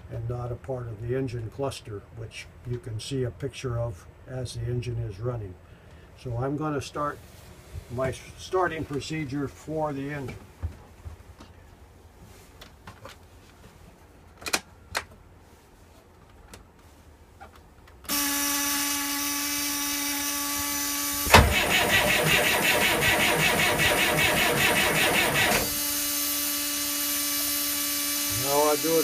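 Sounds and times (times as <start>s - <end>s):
electric buzz: 18.1s - 29.0s
starter motor cranking diesel engine: 21.2s - 25.8s.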